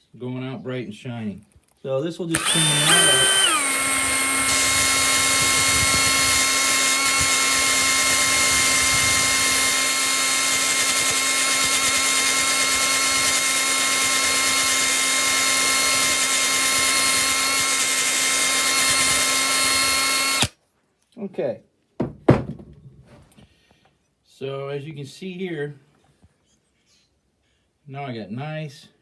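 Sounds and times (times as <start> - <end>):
electric power tool running: 2.3 - 20.5.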